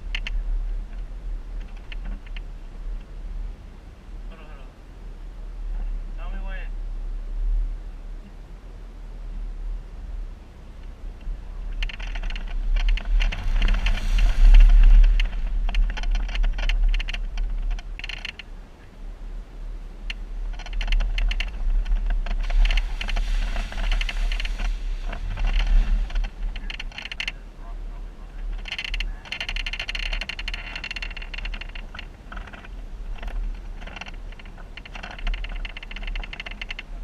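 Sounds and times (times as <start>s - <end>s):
vehicle engine rumble: 0.0s - 37.0s
clattering and rattling: 11.2s - 18.4s, 20.4s - 27.4s, 28.4s - 37.0s.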